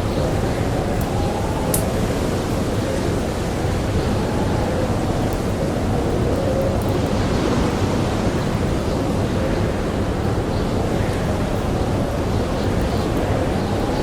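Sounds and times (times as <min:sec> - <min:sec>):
campfire crackling: 0:00.0 - 0:08.7
blizzard wind howling: 0:00.0 - 0:14.0.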